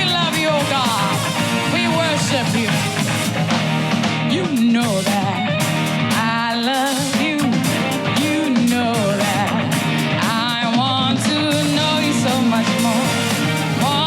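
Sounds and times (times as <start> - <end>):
drums beating: 0.0 - 14.0
guitar: 0.0 - 14.0
person singing: 0.0 - 14.0
worship band playing: 0.0 - 14.0.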